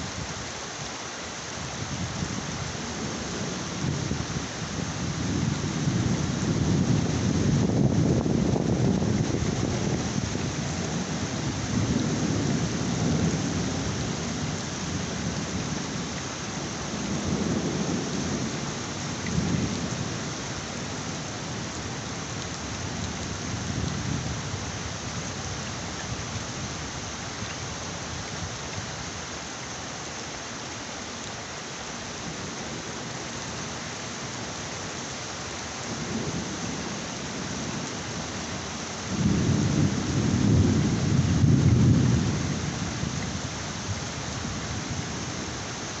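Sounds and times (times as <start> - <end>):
heavy rain falling: 0.0 - 46.0
thunder rumbling: 3.0 - 15.8, 39.1 - 43.2.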